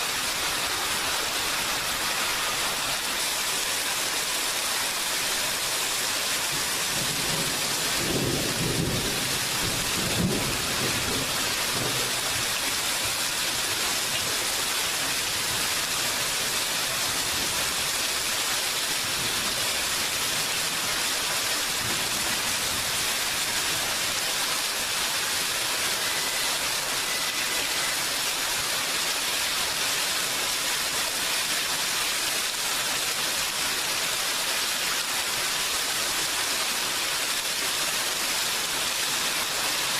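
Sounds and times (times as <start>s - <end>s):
rain hissing: 0.0s - 39.9s.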